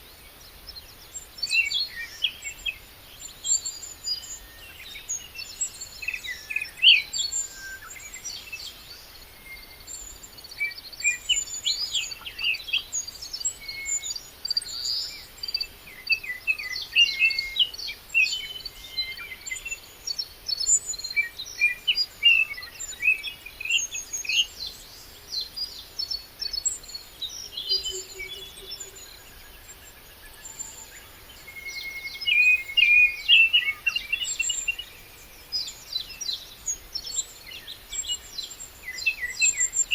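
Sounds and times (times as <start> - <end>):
songbirds chirping and warbling: 0.0 - 39.9
high repeated bird chirp: 31.4 - 35.1.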